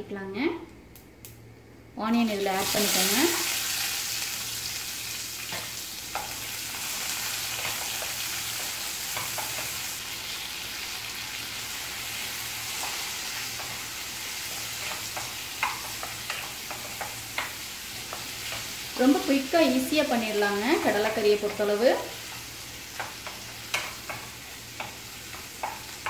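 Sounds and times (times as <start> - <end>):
vegetables sizzling in oil: 2.0 - 26.0
spatula scraping and tapping: 23.0 - 26.0.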